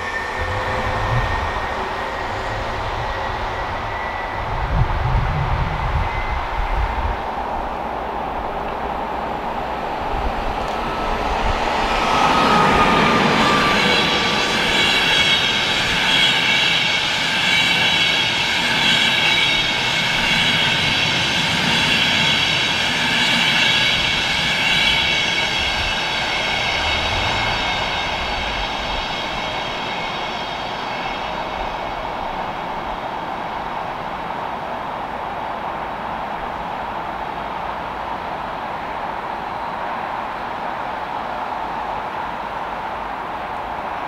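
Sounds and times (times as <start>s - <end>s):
high whining tones: 0.0s - 7.1s, 10.7s - 32.4s
train wheels rushing on rails: 0.0s - 44.0s.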